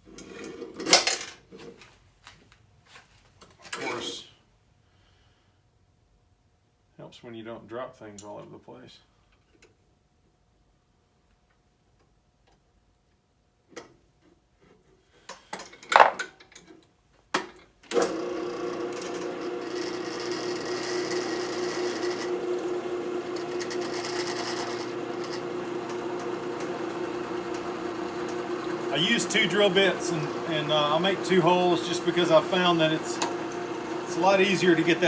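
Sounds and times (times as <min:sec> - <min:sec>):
small parts clattering: 0:00.8 - 0:01.5, 0:15.5 - 0:16.9
electric drill press humming: 0:17.9 - 0:35.0.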